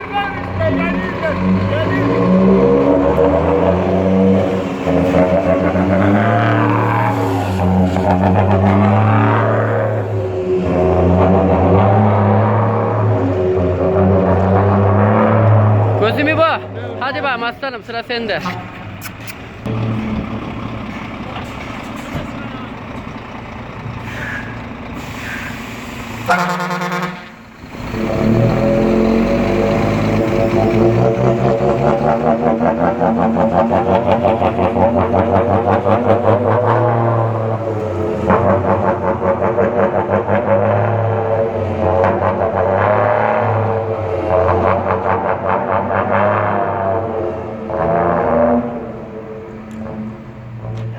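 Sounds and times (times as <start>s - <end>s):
vehicle engine droning: 0.0s - 50.9s
vehicle horn blast: 26.3s - 27.4s.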